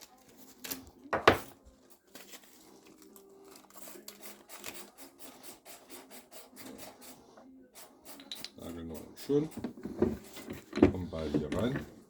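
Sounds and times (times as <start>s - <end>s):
packaging rustling: 2.0s - 5.0s.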